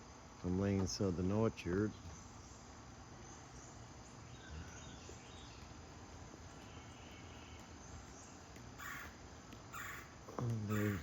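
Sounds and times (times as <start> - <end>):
crickets and insects chirring: 0.0 - 11.0
short bird calls: 8.8 - 11.0.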